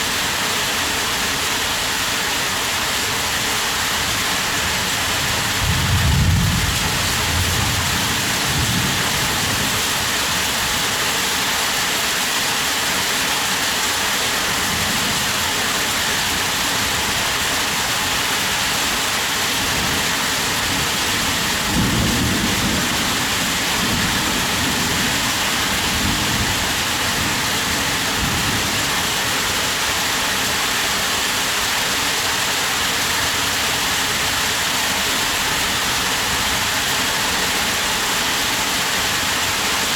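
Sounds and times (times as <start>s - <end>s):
heavy rain hiss: 0.0s - 39.9s
low thunder rumbles: 5.4s - 9.8s, 21.3s - 29.0s.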